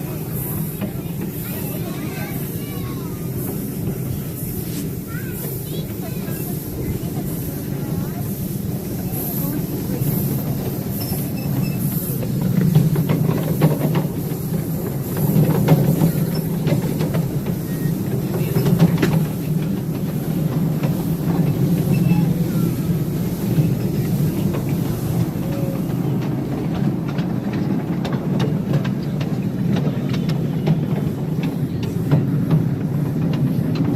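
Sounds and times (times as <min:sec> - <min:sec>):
steam train rumbling on track: 0:00.0 - 0:33.9
wheel clicks over rails: 0:09.1 - 0:33.9.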